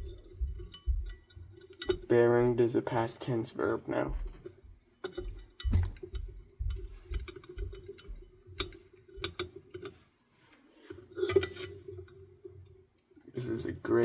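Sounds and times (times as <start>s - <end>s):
metal parts clicking and knocking: 0.0s - 2.2s, 3.6s - 10.0s, 10.9s - 12.2s
faint steady hum: 0.0s - 14.0s.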